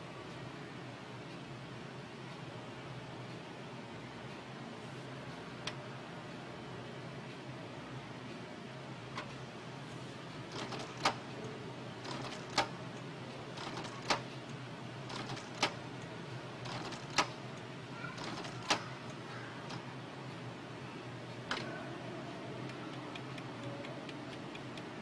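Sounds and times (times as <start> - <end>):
low steady hum: 0.0 - 15.1
printer mechanism whirring: 9.2 - 17.6, 18.2 - 19.9.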